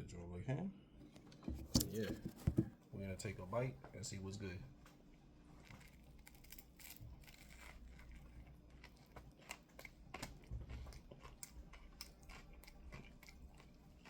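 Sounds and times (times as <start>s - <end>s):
person chewing sandwich: 4.8s - 14.0s.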